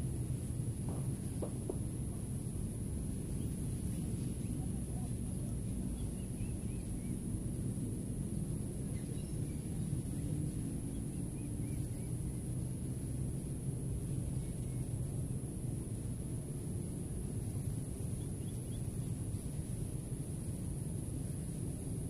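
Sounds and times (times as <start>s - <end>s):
strong wind buffeting microphone: 0.0s - 22.0s
faint bird chirps: 3.3s - 7.4s, 8.4s - 12.6s, 18.0s - 19.5s.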